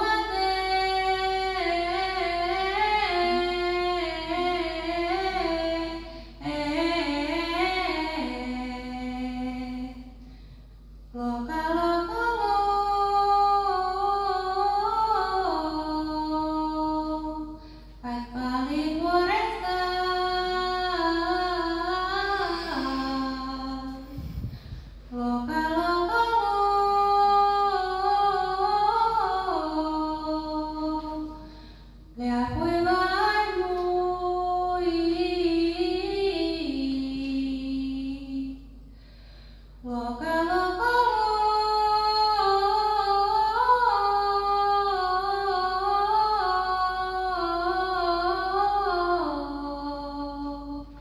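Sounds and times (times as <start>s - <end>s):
woman singing held notes: 21.6s - 24.5s.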